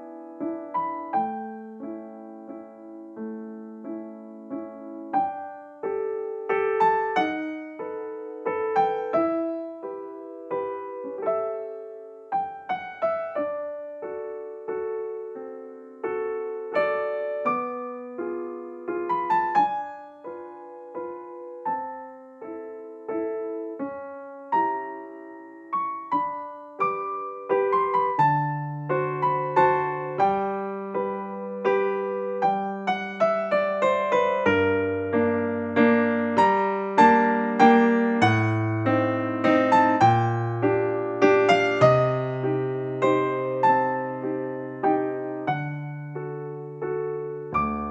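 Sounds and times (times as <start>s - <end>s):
gentle piano melody: 0.0s - 47.9s.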